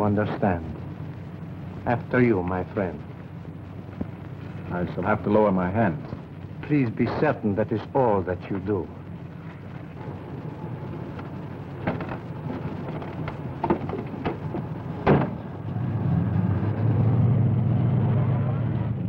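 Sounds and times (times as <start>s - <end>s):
car engine humming: 0.0s - 19.0s
knocks: 11.8s - 12.2s, 12.9s - 15.4s.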